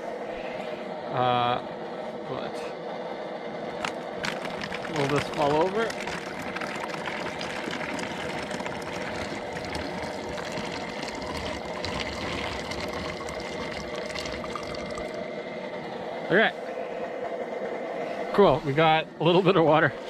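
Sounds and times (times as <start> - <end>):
water pouring into plastic bottle: 3.8 - 15.2.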